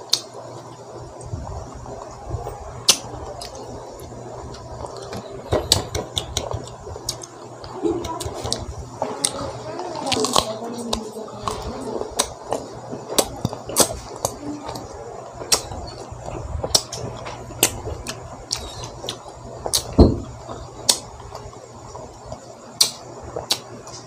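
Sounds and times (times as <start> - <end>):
chewing crunchy fruit: 0.0 - 24.0
low thump: 20.0 - 20.3.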